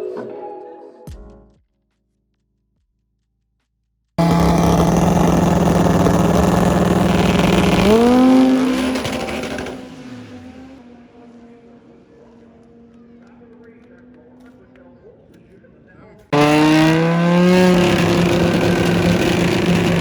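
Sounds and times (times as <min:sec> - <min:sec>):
drag race car at full throttle: 0:04.2 - 0:15.0, 0:16.3 - 0:20.0.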